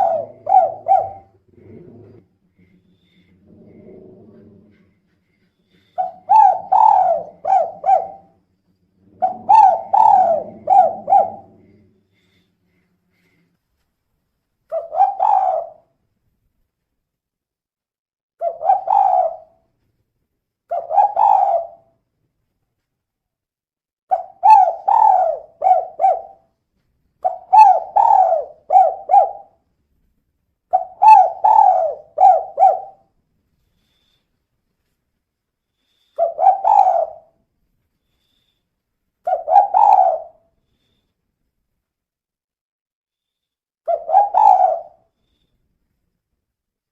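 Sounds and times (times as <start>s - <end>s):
dove cooing: 0.0s - 2.3s, 3.0s - 5.0s, 5.7s - 8.4s, 9.0s - 12.4s, 14.7s - 15.9s, 18.4s - 19.6s, 20.7s - 21.9s, 24.1s - 26.5s, 27.2s - 29.6s, 30.7s - 33.1s, 36.2s - 37.4s, 39.2s - 40.4s, 43.9s - 45.1s.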